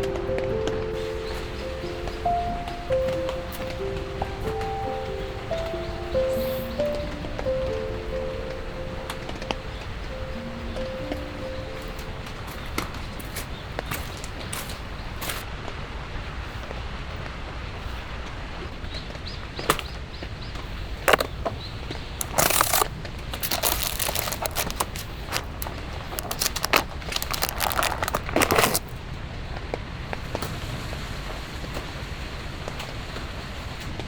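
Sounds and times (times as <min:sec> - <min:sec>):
steady rain: 0:00.0 - 0:20.9, 0:22.4 - 0:34.0
crackling crinkling handling: 0:21.0 - 0:21.6, 0:22.2 - 0:29.0.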